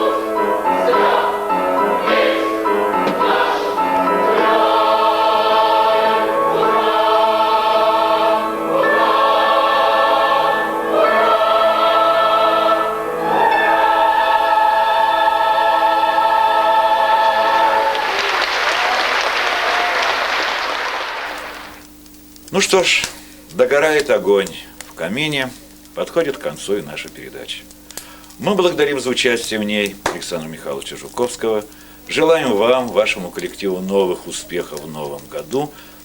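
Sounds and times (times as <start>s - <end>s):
choir singing sustained chords: 0.0s - 19.9s
applause: 17.7s - 21.8s.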